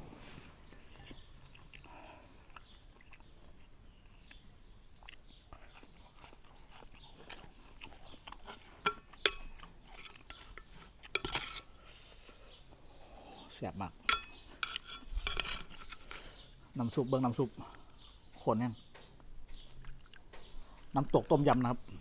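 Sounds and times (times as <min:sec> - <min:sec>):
chewing and slurping soup: 0:00.2 - 0:16.7, 0:19.1 - 0:22.0
utensil clinking on bowl: 0:08.8 - 0:09.6, 0:14.0 - 0:16.1.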